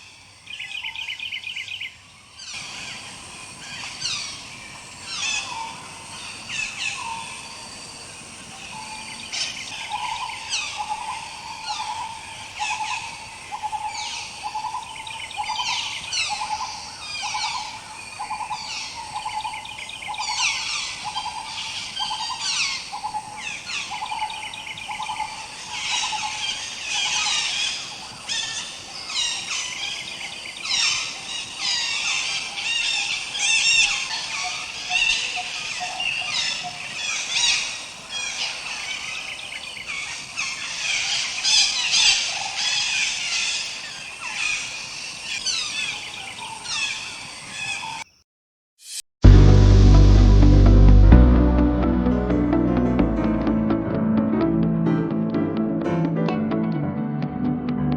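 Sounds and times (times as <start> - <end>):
low repeating note: 49.2 - 57.9.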